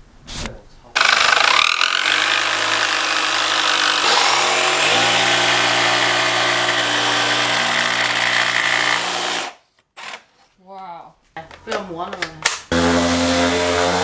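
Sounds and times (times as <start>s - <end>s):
power sander grinding wood: 1.0s - 10.2s, 12.7s - 14.0s.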